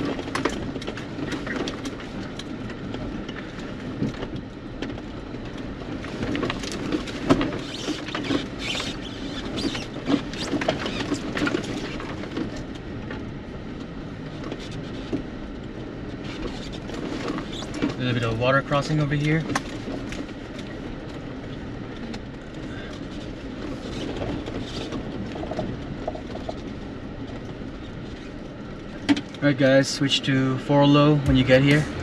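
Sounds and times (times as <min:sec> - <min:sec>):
small clicks and rattles: 0:00.0 - 0:13.2
low steady hum: 0:00.0 - 0:32.0.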